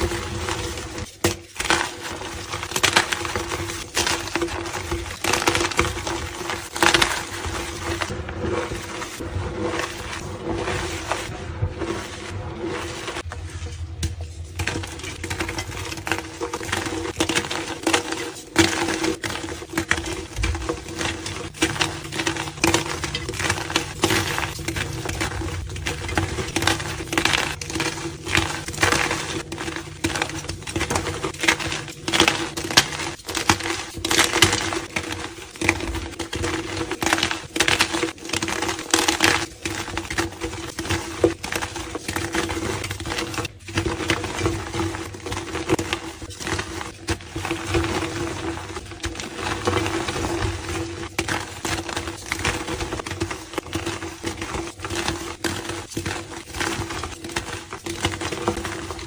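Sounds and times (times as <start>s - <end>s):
chalk crushed by hand: 0.0s - 59.0s.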